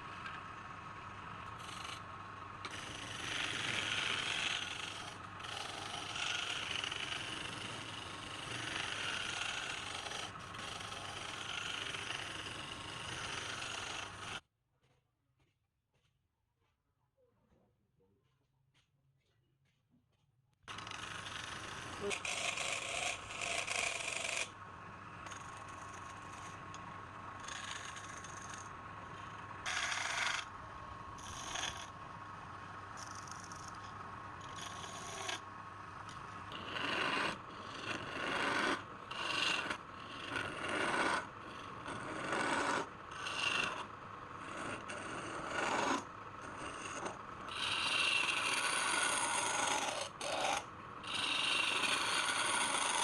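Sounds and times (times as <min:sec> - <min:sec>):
rasping tool on wood: 0:01.5 - 0:14.4, 0:20.7 - 0:24.6, 0:25.2 - 0:30.5, 0:31.2 - 0:32.0, 0:33.0 - 0:35.4, 0:36.0 - 0:53.0.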